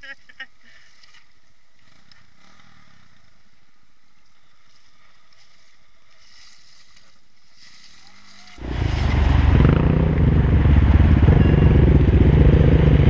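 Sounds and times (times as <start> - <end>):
motorcycle wading through water: 8.6 - 13.0.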